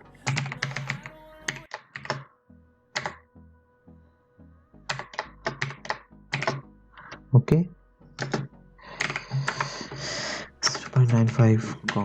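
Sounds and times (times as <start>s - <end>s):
typing on computer keyboard: 0.3s - 2.2s, 3.0s - 3.2s, 4.9s - 6.6s, 8.2s - 9.8s.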